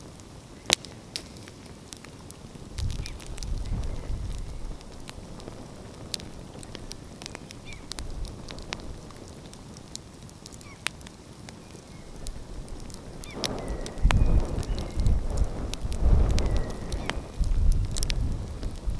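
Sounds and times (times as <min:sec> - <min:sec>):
wood fire crackling and popping: 0:00.0 - 0:18.9
low rumble: 0:12.2 - 0:18.9.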